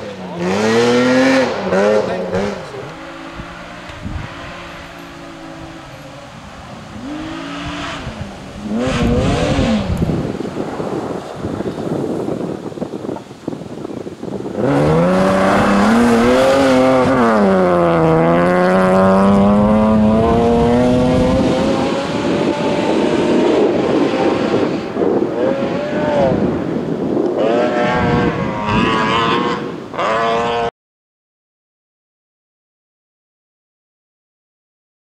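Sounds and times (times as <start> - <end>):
car engine revving at high revs: 0.0 - 13.2, 14.3 - 26.6.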